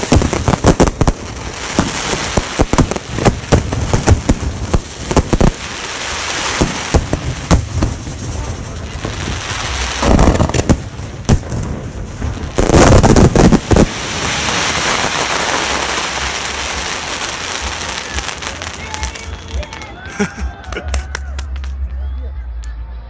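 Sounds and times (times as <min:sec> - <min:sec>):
fireworks bangs: 0:00.0 - 0:22.0
fireworks crackle: 0:00.0 - 0:22.0.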